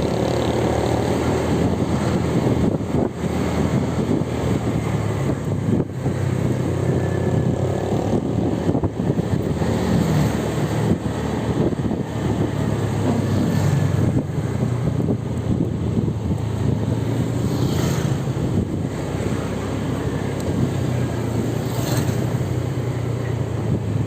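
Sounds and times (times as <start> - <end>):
engine and tyre rumble: 0.0 - 24.0.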